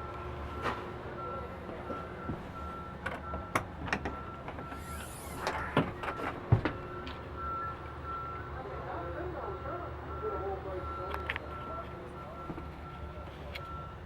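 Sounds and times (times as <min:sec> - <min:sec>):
clicks and knocks of bunk hinges: 0:02.3 - 0:07.3
faint repeating beep: 0:06.8 - 0:08.5, 0:09.6 - 0:14.0.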